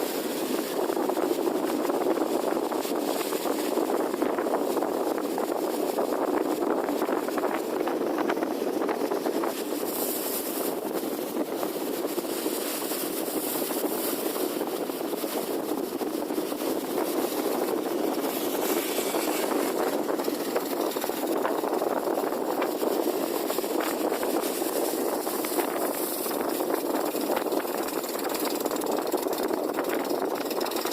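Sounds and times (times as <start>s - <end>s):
boat engine droning: 15.0s - 30.9s.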